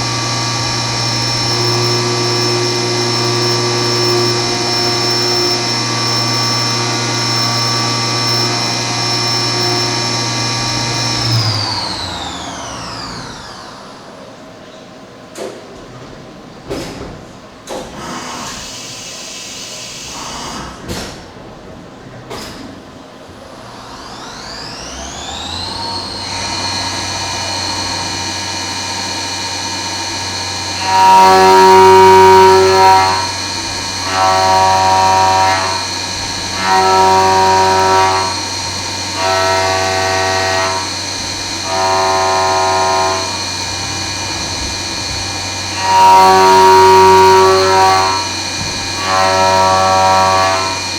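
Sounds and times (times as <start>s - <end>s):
mill cutting aluminum singing tone: 0.0s - 13.7s, 24.0s - 50.9s
mill spindle whine: 0.0s - 50.9s.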